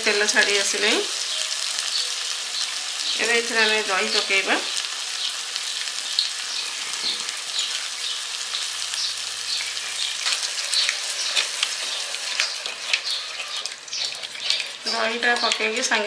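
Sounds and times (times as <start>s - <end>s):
paste sizzling in hot oil: 0.0s - 16.0s
wooden spatula scraping pan: 9.8s - 16.0s.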